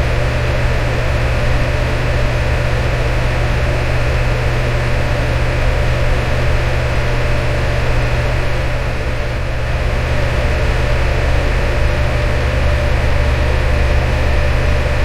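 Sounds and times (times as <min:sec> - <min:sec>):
electric fan air rush: 0:00.0 - 0:15.0
low motor hum: 0:07.4 - 0:15.0.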